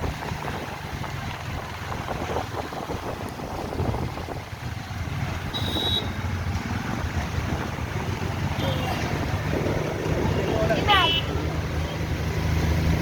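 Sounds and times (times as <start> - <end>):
moving vehicle rumble: 0.0 - 13.0.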